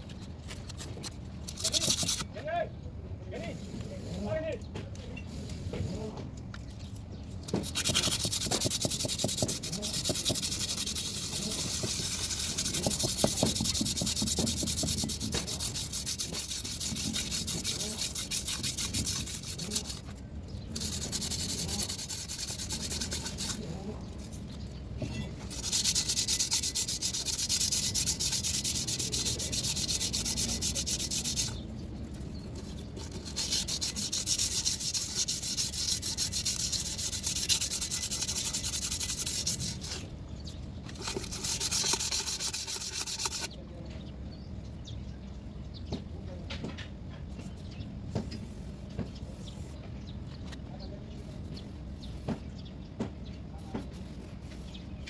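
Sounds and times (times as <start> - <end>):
abrasive sanding on metal: 1.5 - 2.3, 7.5 - 40.1, 40.9 - 43.5.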